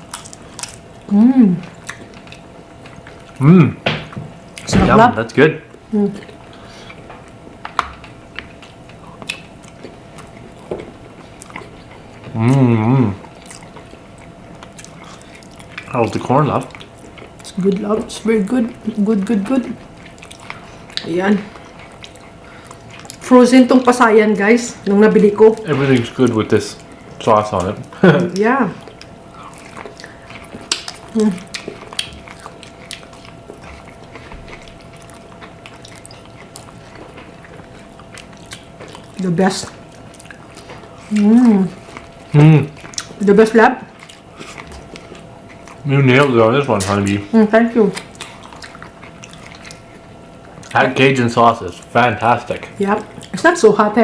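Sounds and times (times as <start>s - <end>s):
person chewing: 0.0s - 5.0s, 5.7s - 54.0s
person humming mmm: 3.4s - 3.8s, 12.3s - 13.2s.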